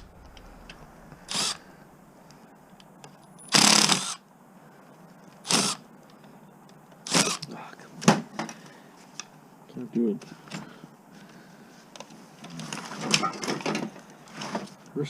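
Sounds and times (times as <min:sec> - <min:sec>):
cordless power driver whirring: 0:00.1 - 0:01.7.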